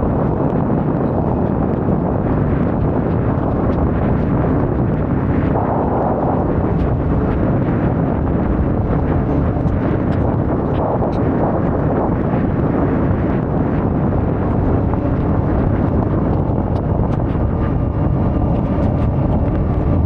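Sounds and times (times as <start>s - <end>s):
wind buffeting microphone: 0.0s - 20.0s
motorcycle engine running: 14.0s - 20.0s.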